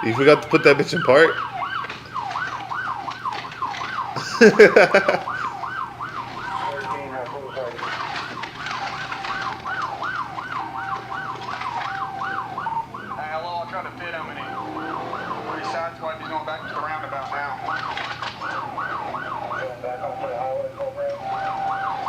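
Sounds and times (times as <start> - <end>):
police siren yelping: 0.0 - 22.0
steady siren tone: 0.0 - 22.0
loud brief siren burst: 5.0 - 22.0.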